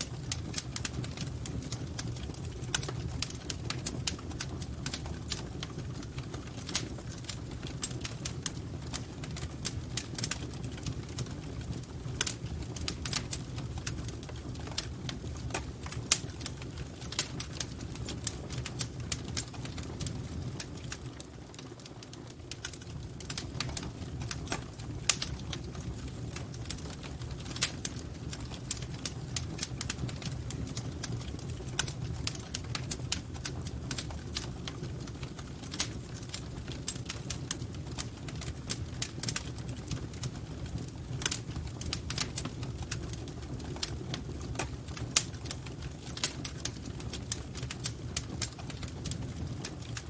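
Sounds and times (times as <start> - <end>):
fire crackling and popping: 0.0 - 50.0
low rumble of flames: 0.0 - 50.0.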